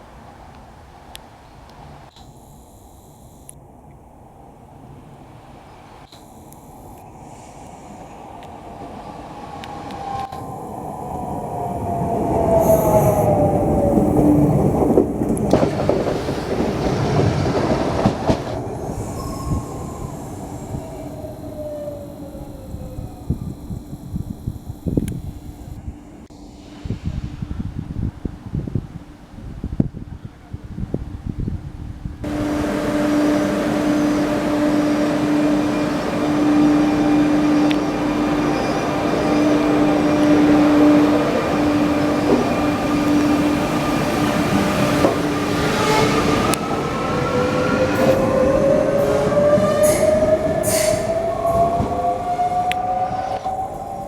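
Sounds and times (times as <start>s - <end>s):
train traction whine: 1.8s - 29.8s, 32.2s - 54.0s
train wheels on rails: 5.2s - 25.8s, 32.2s - 54.0s
hiss: 5.7s - 28.1s, 47.4s - 51.8s.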